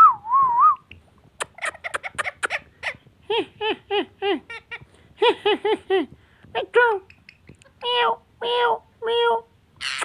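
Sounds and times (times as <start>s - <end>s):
parrot whistling and chattering: 0.8s - 3.0s, 9.8s - 10.0s.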